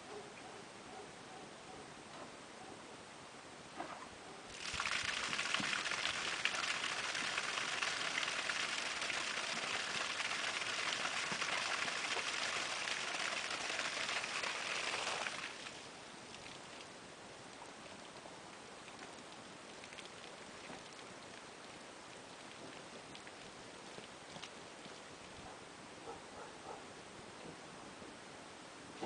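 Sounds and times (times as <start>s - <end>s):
water gushing from pump discharge: 4.5s - 16.6s.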